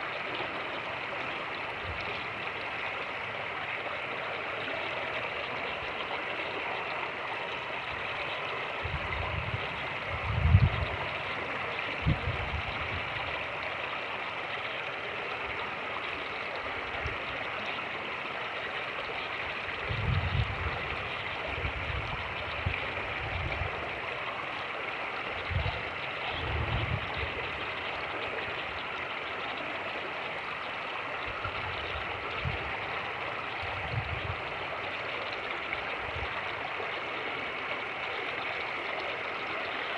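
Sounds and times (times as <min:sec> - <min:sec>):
creek water rushing over rapids: 0:00.0 - 0:39.9
wind buffeting microphone: 0:08.8 - 0:11.3, 0:12.0 - 0:13.3, 0:19.8 - 0:23.9, 0:25.4 - 0:27.4, 0:31.3 - 0:32.9, 0:33.6 - 0:34.6.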